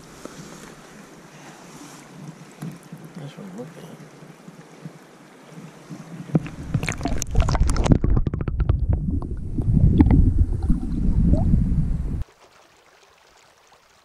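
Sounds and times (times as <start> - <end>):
water splashing: 0.0 - 11.6, 12.2 - 14.0
muffled underwater rumble and gurgling: 6.3 - 12.2.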